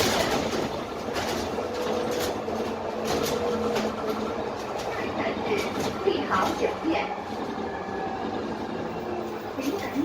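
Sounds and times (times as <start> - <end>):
rattles and knocks from bus body: 0.0 - 7.0
bus engine drone: 0.0 - 10.0.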